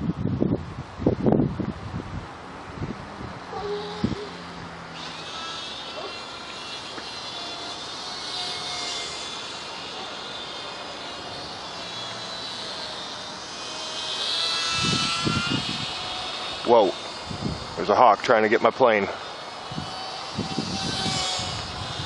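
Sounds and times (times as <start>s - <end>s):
wind noise: 0.0s - 5.5s, 13.0s - 18.3s, 19.5s - 22.0s
model plane motor whining: 3.5s - 22.0s.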